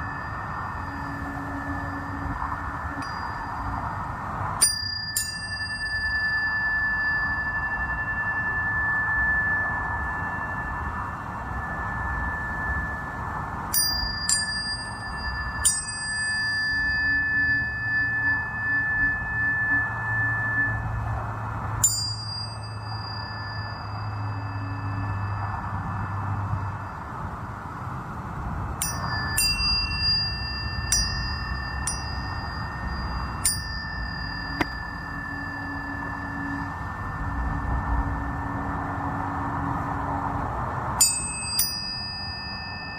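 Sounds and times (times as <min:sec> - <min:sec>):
low steady tone: 0:00.0 - 0:42.9
tuning fork ringing: 0:00.0 - 0:42.9
metallic ping of struck forks: 0:28.8 - 0:36.7.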